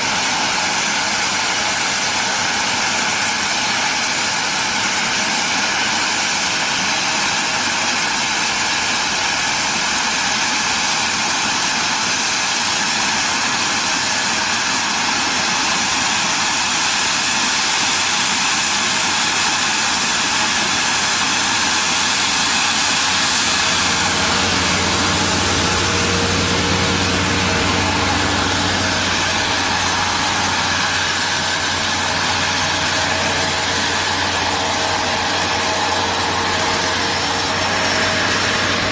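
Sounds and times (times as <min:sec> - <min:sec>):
engine noise with hiss: 0:00.0 - 0:38.9
low hum: 0:22.7 - 0:38.9.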